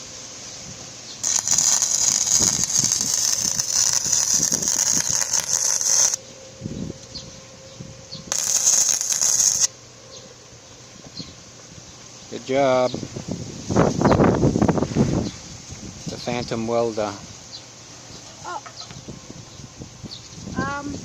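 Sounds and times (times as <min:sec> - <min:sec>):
arc welding crackling and hissing: 0:00.0 - 0:06.2, 0:08.3 - 0:09.8.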